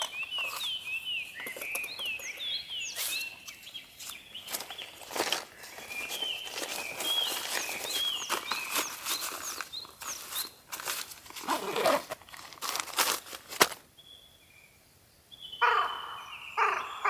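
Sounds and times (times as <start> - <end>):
small birds chirping: 0.0 - 12.4, 13.2 - 17.0
low wavering bird call: 15.6 - 17.0.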